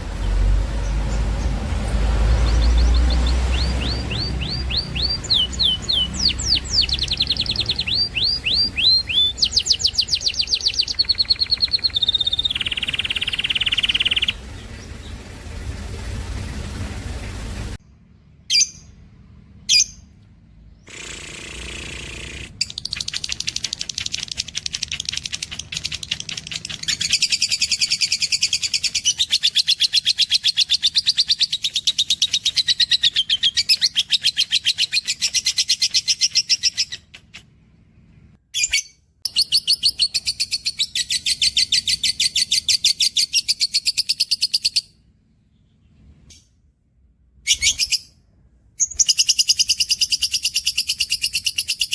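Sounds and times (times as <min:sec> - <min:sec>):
cage birds singing trills: 0:00.0 - 0:15.8, 0:17.9 - 0:21.2, 0:22.0 - 0:46.6, 0:47.4 - 0:51.9.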